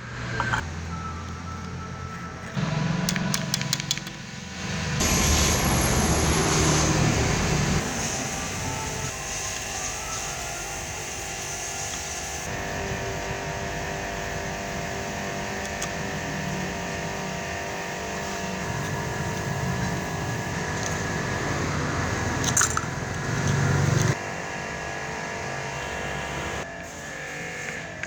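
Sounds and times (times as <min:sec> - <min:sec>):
small electric motor whining: 0:04.6 - 0:24.2.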